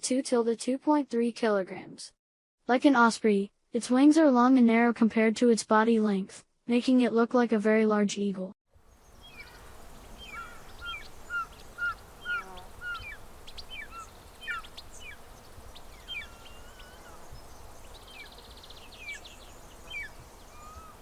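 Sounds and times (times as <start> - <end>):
outdoor background noise: 8.8 - 21.0
birds chirping: 8.9 - 21.0
buzzy bird trill: 8.9 - 21.0.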